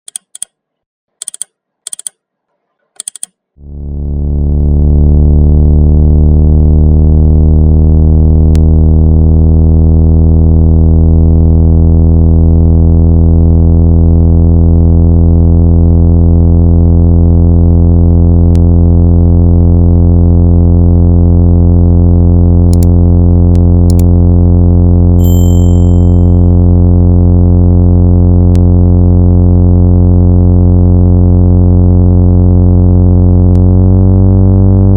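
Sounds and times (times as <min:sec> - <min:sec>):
short blips: 0:01.2 - 0:02.2, 0:02.8 - 0:03.4
synthesized low buzzing tone: 0:03.6 - 0:34.9.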